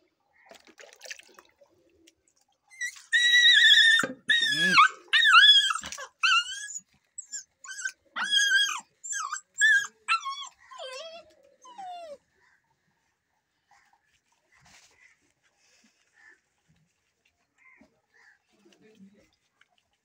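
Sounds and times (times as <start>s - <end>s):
puppy whining and yelping: 2.7s - 12.2s.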